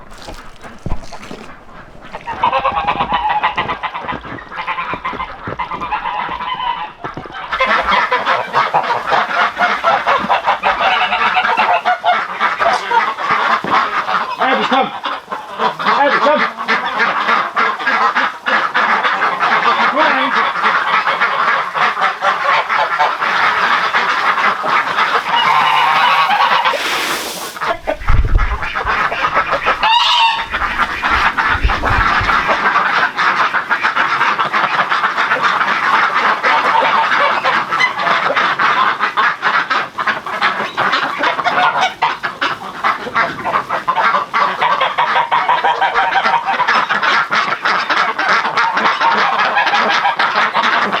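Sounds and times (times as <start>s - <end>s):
ducks quacking: 0.0s - 51.0s
geese honking: 0.0s - 51.0s
low thumps: 27.7s - 32.6s.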